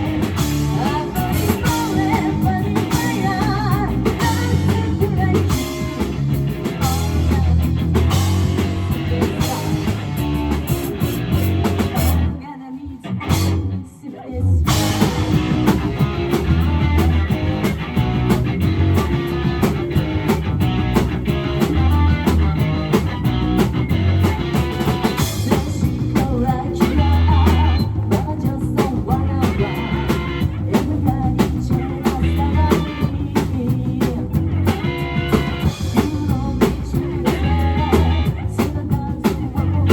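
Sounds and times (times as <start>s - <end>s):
person singing: 0.0s - 10.8s, 21.4s - 39.9s
rock band playing: 0.0s - 13.9s, 14.5s - 39.9s.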